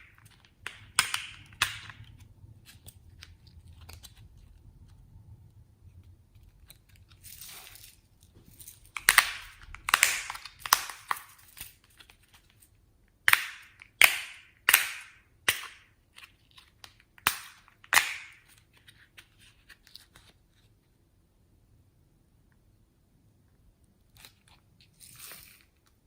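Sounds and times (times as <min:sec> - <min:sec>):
slime crackling: 0:06.0 - 0:12.4
slime popping: 0:08.9 - 0:11.6.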